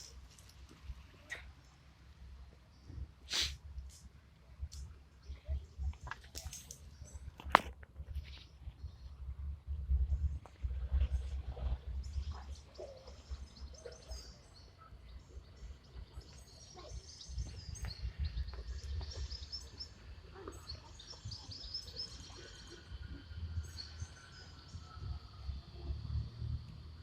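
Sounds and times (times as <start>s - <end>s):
small birds chirping: 12.0s - 25.8s.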